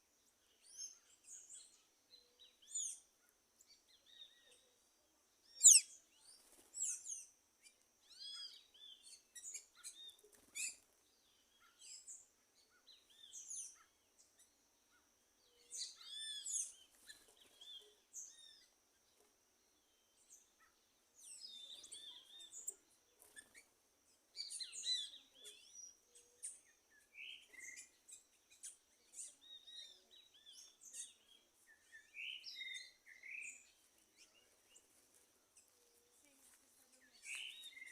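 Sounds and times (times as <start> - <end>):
wild birds calling: 5.6 - 5.9.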